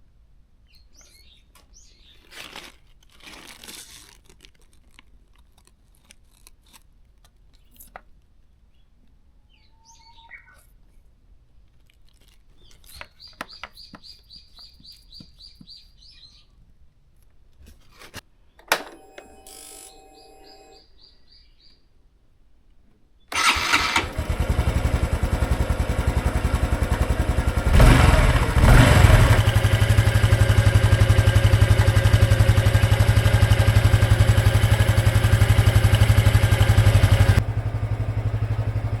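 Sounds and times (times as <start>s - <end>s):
starter short whirs: 23.3s - 39.0s
motorcycle engine idling: 23.4s - 39.0s.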